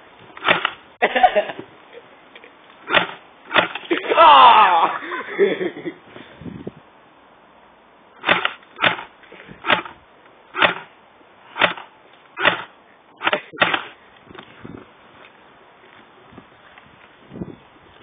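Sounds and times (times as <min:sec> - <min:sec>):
bb gun shots: 0:00.4 - 0:00.8, 0:02.9 - 0:03.8, 0:08.2 - 0:10.0, 0:10.6 - 0:10.9, 0:11.6 - 0:14.0.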